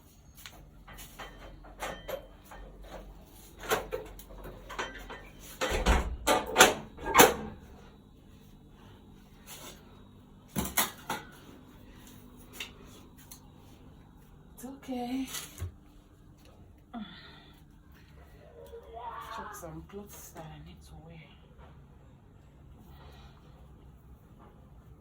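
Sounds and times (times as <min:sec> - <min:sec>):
door banging shut: 0:05.6 - 0:07.6.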